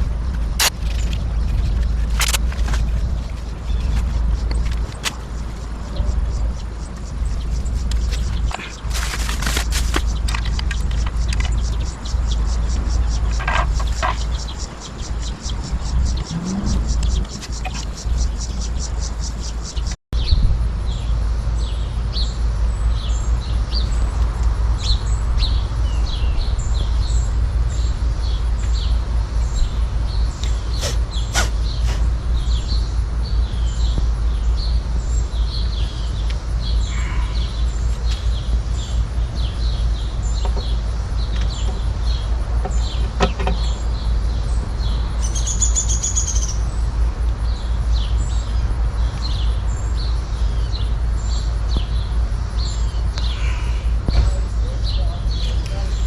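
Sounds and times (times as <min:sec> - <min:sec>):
small birds chirping: 0:00.0 - 0:56.0
steady low rumble: 0:00.0 - 0:56.0
sharp clicks: 0:00.3 - 0:01.2, 0:01.8 - 0:02.7.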